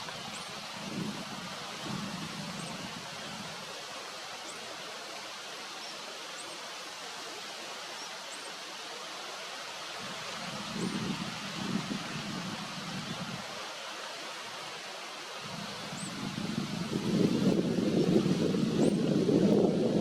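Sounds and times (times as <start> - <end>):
outdoor ambient hiss: 0.0 - 20.0.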